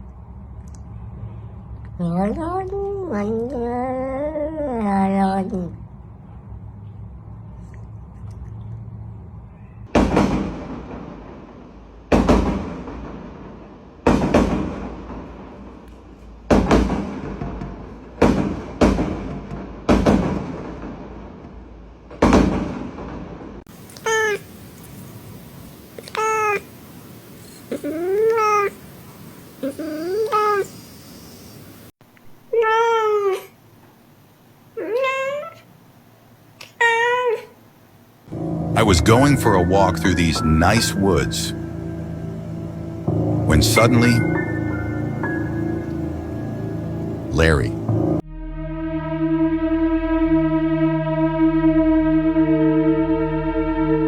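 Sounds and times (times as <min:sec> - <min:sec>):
cat meowing mournfully: 0:23.8 - 0:30.8, 0:32.5 - 0:33.5, 0:34.8 - 0:35.7, 0:36.7 - 0:37.6
sharp loud hits: 0:38.3 - 0:48.2.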